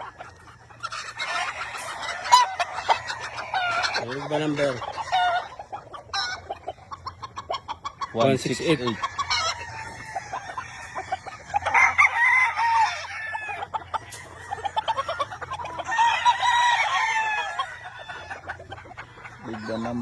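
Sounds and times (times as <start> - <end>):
chickens clucking: 0.0 - 20.0
roosters crowing: 0.0 - 20.0.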